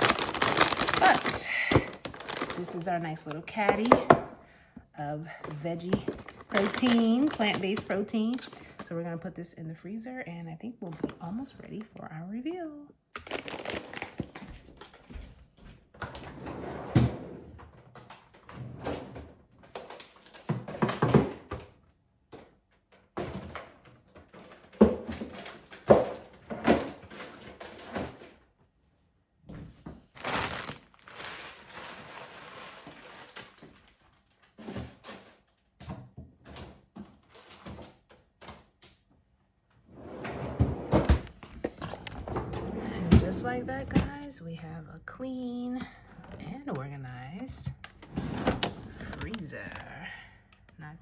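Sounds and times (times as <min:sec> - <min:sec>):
steady rustling: 0:00.0 - 0:04.0
plastic bins knocking against shelves: 0:00.0 - 0:04.4, 0:05.8 - 0:08.8.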